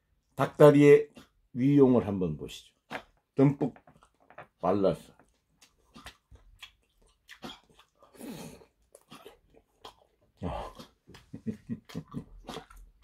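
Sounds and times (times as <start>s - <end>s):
biting and chewing: 2.9s - 13.0s
wet mouth smacks and clicks: 5.6s - 8.0s.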